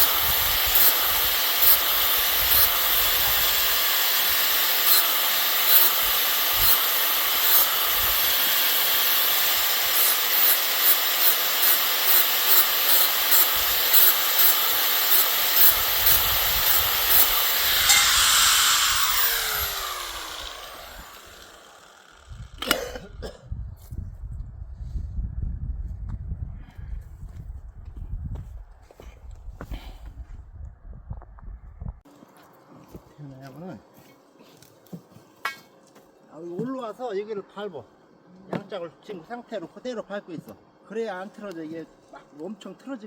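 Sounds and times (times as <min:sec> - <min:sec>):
power tool running: 0:00.0 - 0:22.8.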